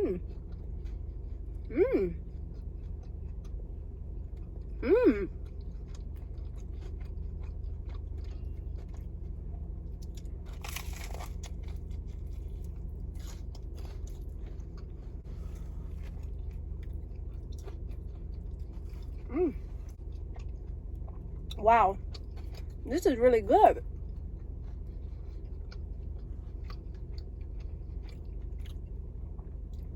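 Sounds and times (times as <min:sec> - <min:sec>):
chewing with small clicks: 0:00.2 - 0:22.9, 0:23.8 - 0:29.9
person humming mm: 0:01.7 - 0:02.2, 0:04.8 - 0:05.3, 0:19.3 - 0:19.6
crunching bite into toast: 0:10.0 - 0:14.7.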